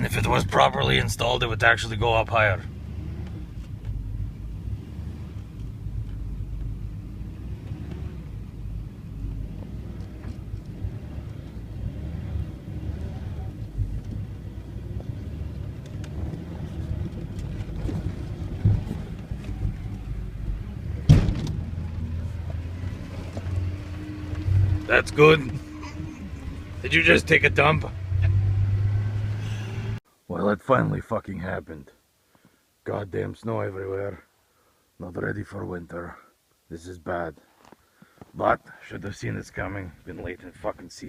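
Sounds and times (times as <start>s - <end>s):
loud bang: 21.0s - 21.8s.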